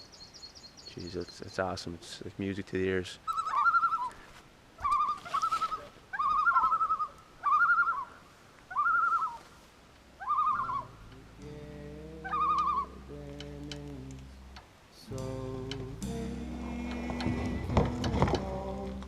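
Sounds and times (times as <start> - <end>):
loon wavering calls: 3.2 - 9.6, 10.2 - 13.8
soft music: 10.6 - 19.0.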